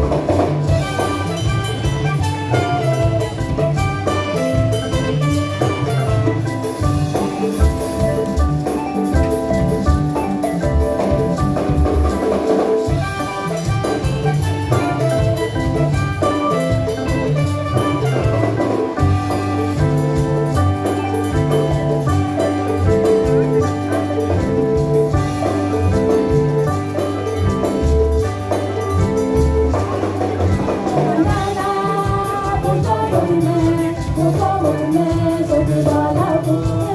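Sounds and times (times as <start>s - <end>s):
live gospel band playing: 0.0s - 36.9s
people singing: 30.6s - 36.9s.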